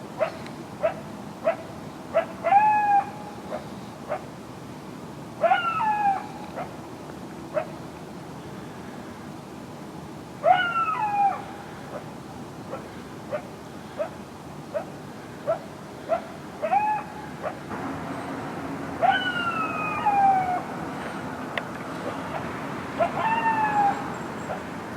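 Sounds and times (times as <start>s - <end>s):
coyotes bark-howling: 0.2s - 4.3s, 5.4s - 6.8s, 10.4s - 12.1s, 12.7s - 17.7s, 19.0s - 20.8s, 22.0s - 24.8s.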